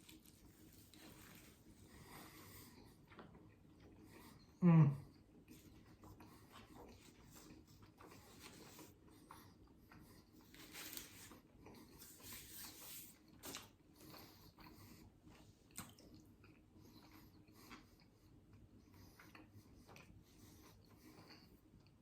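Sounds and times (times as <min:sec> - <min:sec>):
soft rustles: 0:00.0 - 0:02.0, 0:10.4 - 0:13.7
person chewing: 0:05.6 - 0:10.0, 0:15.6 - 0:21.5.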